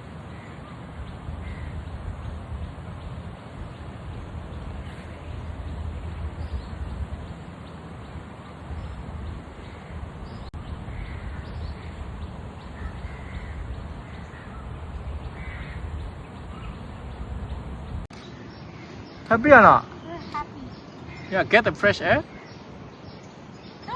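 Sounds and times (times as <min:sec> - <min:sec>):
steady low rumble: 0:00.0 - 0:18.1
crow cawing: 0:01.4 - 0:01.8, 0:12.8 - 0:13.6, 0:15.4 - 0:15.8.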